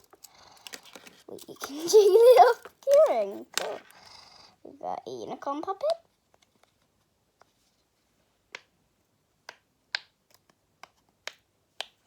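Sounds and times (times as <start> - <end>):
small toys clicking and tapping: 0.0 - 3.9.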